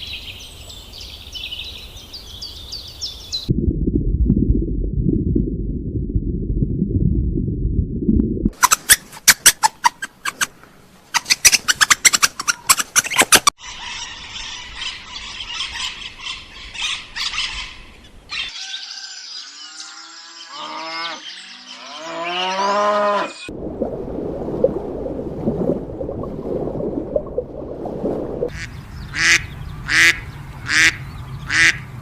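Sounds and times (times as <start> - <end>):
animal rising pitched calls: 18.3 - 23.5.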